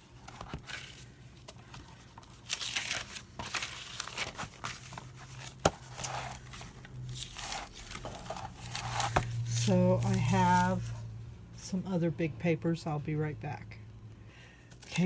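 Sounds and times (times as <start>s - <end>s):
paper rustling and crinkling: 0.0s - 11.1s.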